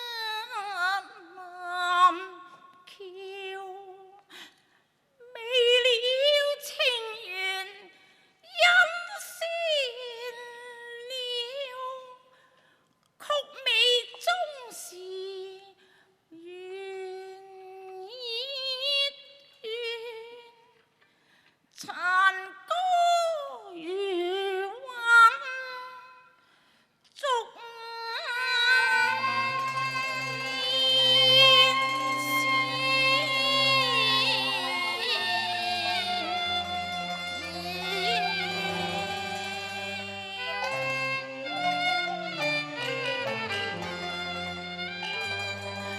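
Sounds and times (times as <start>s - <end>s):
opera singing wavering melody: 27.7s - 45.9s.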